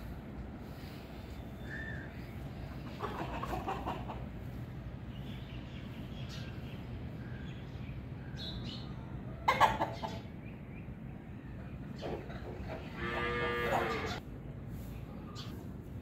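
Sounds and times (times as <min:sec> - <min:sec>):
fowl clucking: 0:02.7 - 0:04.6, 0:09.4 - 0:10.3, 0:12.0 - 0:14.2
steady low hum: 0:04.1 - 0:09.5.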